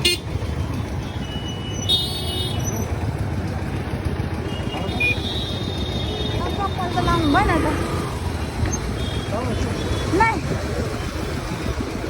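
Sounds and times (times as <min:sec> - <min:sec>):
car horn toot: 0:00.0 - 0:00.3, 0:01.2 - 0:02.7
passing traffic rumble: 0:00.0 - 0:12.0
people's voices: 0:03.5 - 0:11.7.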